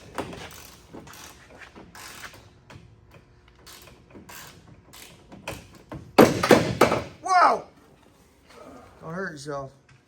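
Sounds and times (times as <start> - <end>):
ratchet wrench clicking: 0.5 - 5.6.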